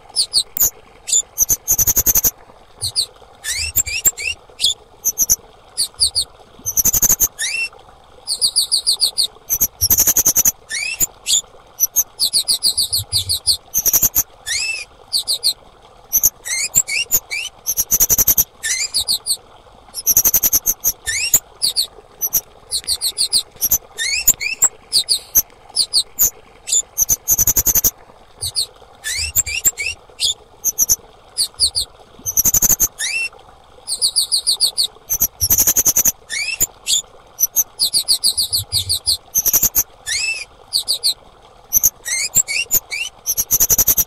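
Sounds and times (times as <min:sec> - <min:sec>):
bird trilling high chirps: 0:00.2 - 0:07.7, 0:08.3 - 0:19.4, 0:20.0 - 0:33.3.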